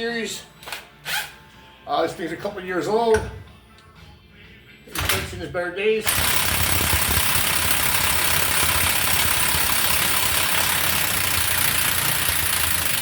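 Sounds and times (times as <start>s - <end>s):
impact wrench running: 6.0s - 13.0s.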